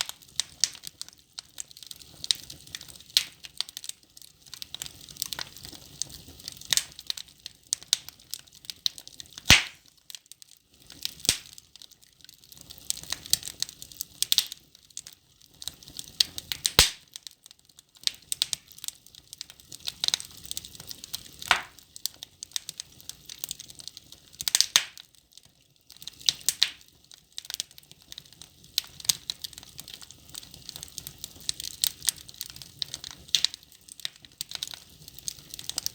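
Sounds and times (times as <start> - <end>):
logs crackling in fireplace: 0.0 - 35.9
sharp wood snap: 9.5 - 9.8, 21.5 - 21.7.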